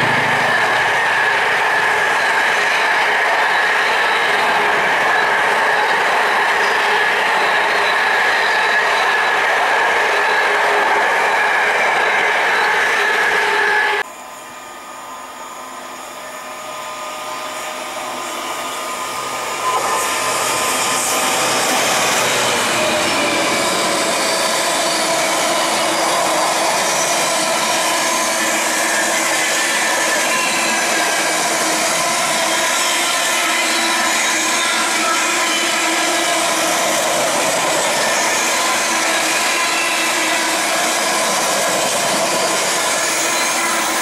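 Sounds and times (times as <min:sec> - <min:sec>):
diesel locomotive engine hum: 0:00.0 - 0:44.0
thin squealing whine: 0:15.0 - 0:44.0.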